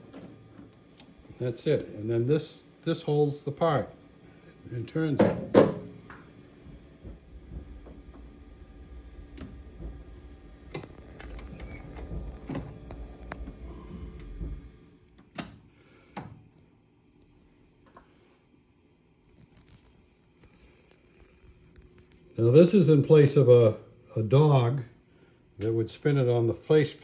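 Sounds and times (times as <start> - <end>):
low rumble: 6.4 - 15.1.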